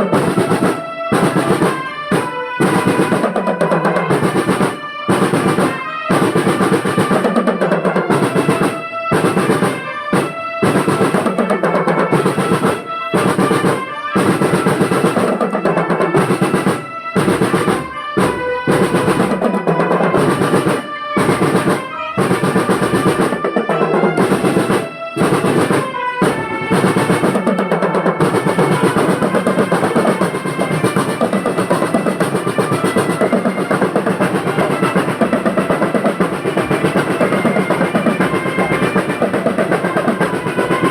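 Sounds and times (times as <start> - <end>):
marching drum band: 0.0 - 40.9
snare drum rolls: 0.0 - 40.9.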